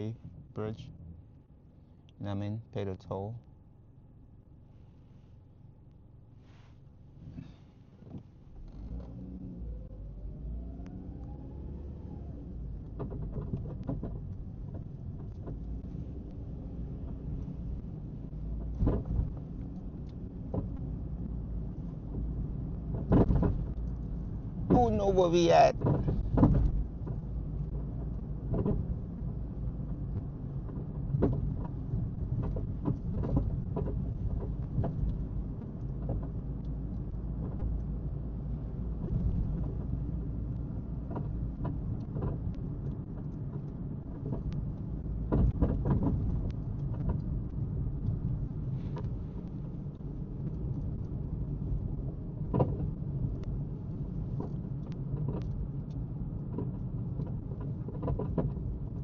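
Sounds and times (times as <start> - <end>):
car engine and tyre rumble: 0.0 - 59.0
light knocks and rattles: 12.6 - 24.9, 25.7 - 59.0.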